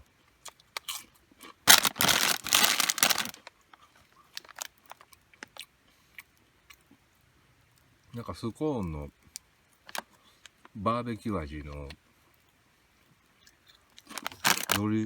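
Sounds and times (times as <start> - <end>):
chips crunching: 0.8 - 3.5, 14.0 - 15.0
snack bag crinkling: 0.8 - 3.5, 4.3 - 5.6, 14.0 - 15.0.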